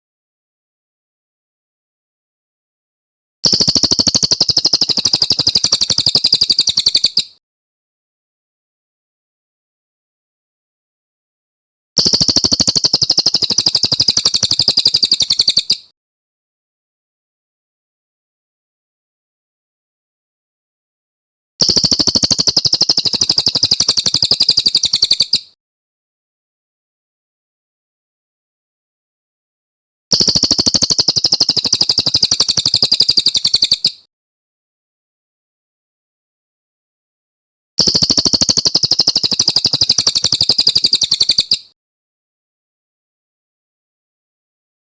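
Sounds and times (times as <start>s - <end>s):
bird singing rapid trill: 3.5s - 7.4s, 12.0s - 15.9s, 21.6s - 25.6s, 30.1s - 34.1s, 37.8s - 41.8s.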